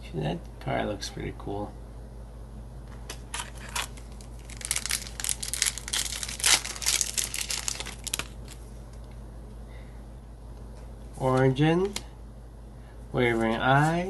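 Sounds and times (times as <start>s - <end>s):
foil pack crinkling and tearing: 3.3s - 8.6s.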